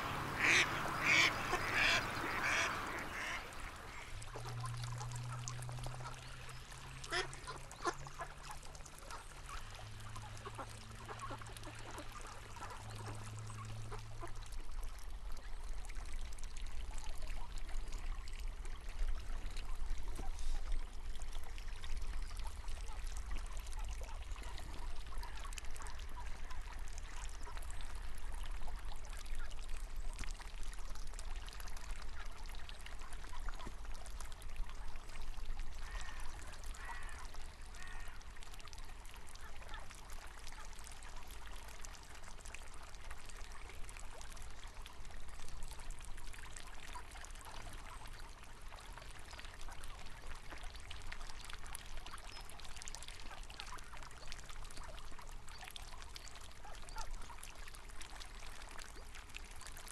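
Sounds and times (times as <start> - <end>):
ducks quacking: 0.0 - 4.1, 7.1 - 8.0
low steady hum: 0.0 - 52.9
flowing river water: 0.0 - 59.9.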